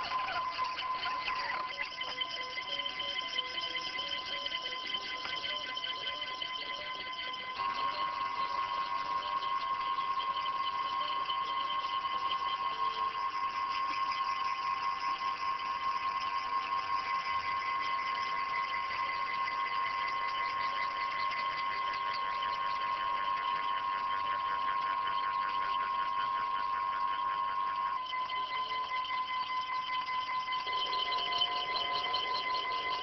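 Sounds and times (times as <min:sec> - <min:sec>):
stepper motors whining: 0:30.2 - 0:33.0.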